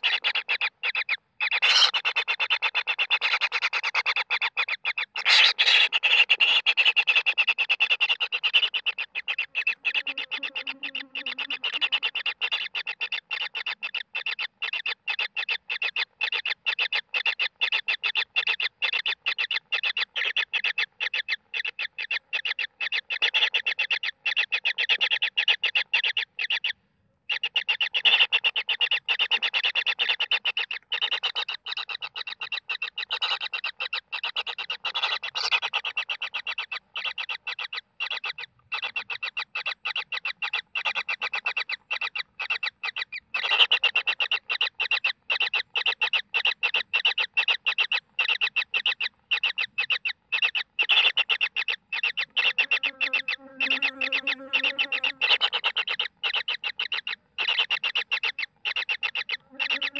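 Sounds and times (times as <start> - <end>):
chicks begging calls: 0.0 - 59.9.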